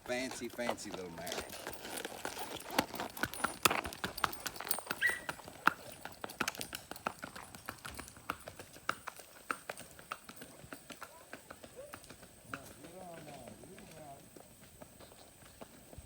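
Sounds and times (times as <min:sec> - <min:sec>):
horse hooves clip-clopping: 0:00.0 - 0:16.0.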